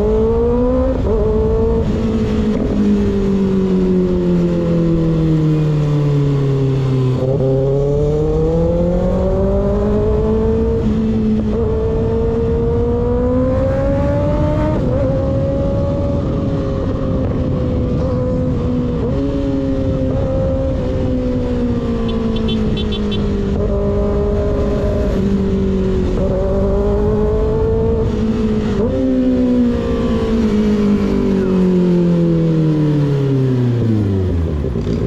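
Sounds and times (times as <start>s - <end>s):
motorcycle engine running: 22.0s - 26.2s.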